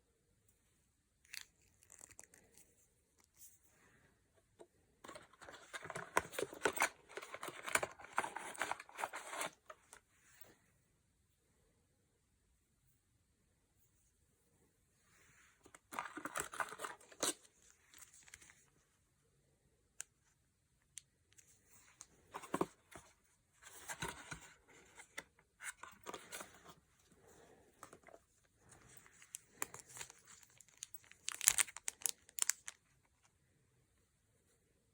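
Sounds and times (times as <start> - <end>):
packaging tearing and crinkling: 29.6 - 32.8.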